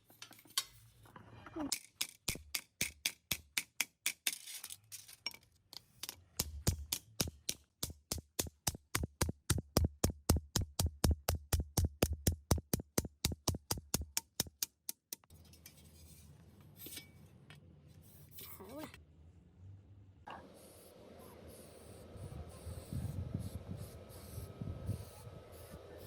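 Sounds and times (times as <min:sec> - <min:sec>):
hammer tapping on sheet metal: 0:06.4 - 0:15.2.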